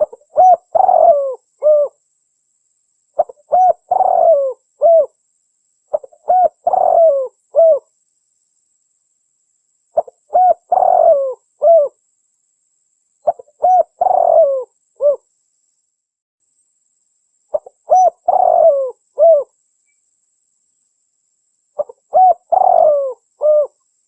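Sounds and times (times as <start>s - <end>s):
dove cooing: 0.0s - 2.0s, 3.2s - 5.2s, 5.9s - 7.9s, 10.0s - 12.0s, 13.2s - 15.2s, 17.5s - 19.5s, 21.8s - 23.8s.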